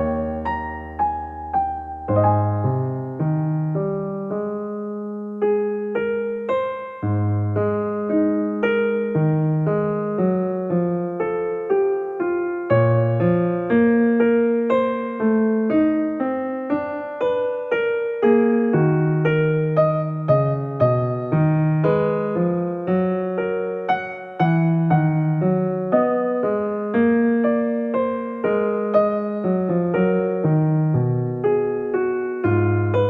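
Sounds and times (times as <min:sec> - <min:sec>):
gentle piano melody: 0:00.0 - 0:33.0.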